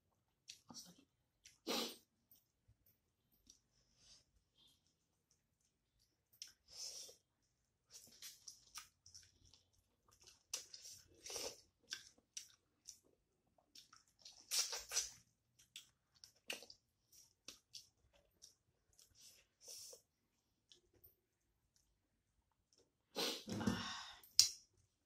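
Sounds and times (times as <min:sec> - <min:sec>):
wet chewing and smacking: 0:05.2 - 0:23.0.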